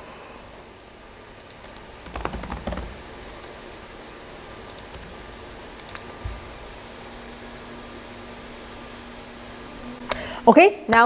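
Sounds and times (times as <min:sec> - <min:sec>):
computer keyboard clicking: 0:01.4 - 0:03.0, 0:04.7 - 0:05.1, 0:05.8 - 0:06.1.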